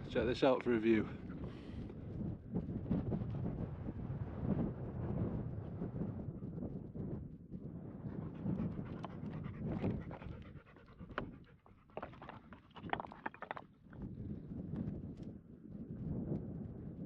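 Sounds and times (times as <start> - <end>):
wind rumbling on microphone: 0.0 - 17.0
dog panting rapidly: 8.2 - 13.4.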